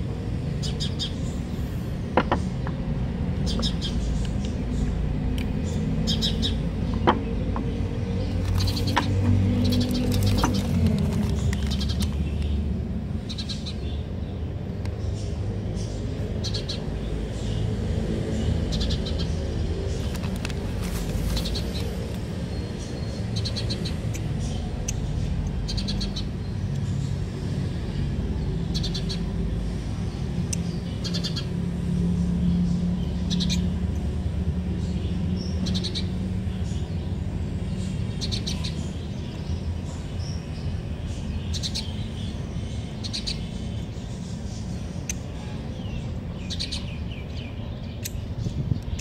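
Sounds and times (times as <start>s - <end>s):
small birds chirping: 0.0s - 49.0s.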